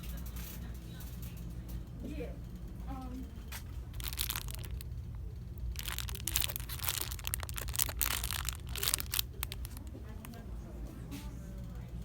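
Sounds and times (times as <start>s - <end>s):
steady low hum: 0.0s - 12.0s
packaging crinkling: 3.9s - 9.9s.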